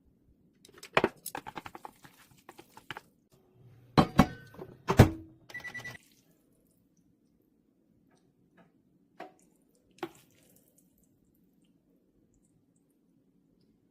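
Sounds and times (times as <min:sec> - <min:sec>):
microwave oven beeping: 0:05.5 - 0:06.0.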